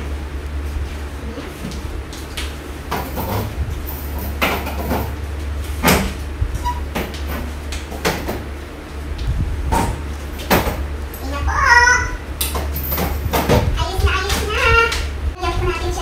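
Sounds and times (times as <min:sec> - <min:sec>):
steady low hum: 0:00.0 - 0:16.0
chairs knocking and scraping on tiles: 0:01.2 - 0:08.6, 0:09.6 - 0:11.0, 0:12.4 - 0:14.6.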